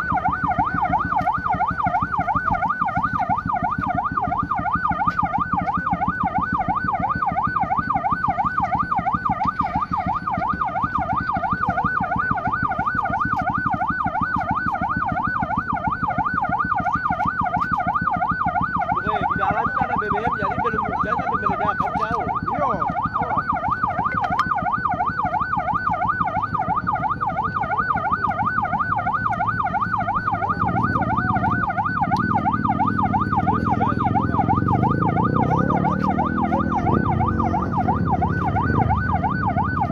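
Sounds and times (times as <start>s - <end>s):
siren yelping: 0.0s - 39.9s.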